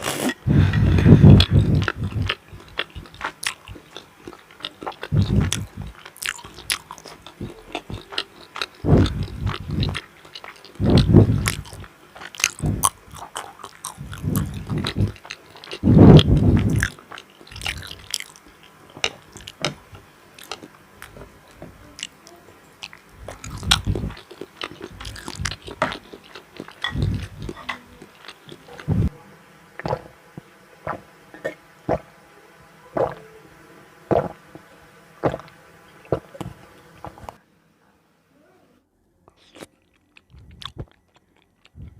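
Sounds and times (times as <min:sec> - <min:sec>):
close chewing and biting: 0:00.0 - 0:19.8, 0:20.4 - 0:21.2, 0:22.0 - 0:29.1, 0:39.3 - 0:41.9.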